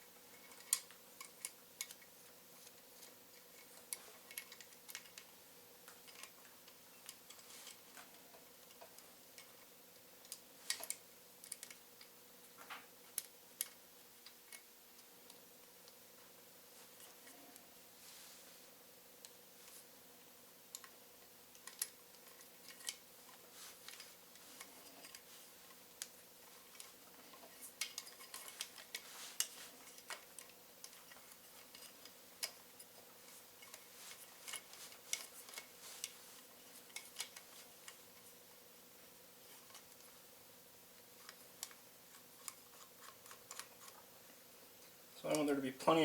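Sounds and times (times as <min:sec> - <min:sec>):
low steady hum: 0:00.0 - 0:46.0
metal parts clicking and tapping: 0:00.3 - 0:02.8, 0:03.4 - 0:05.3, 0:05.9 - 0:14.7, 0:21.5 - 0:25.3, 0:26.0 - 0:38.0, 0:41.2 - 0:44.0.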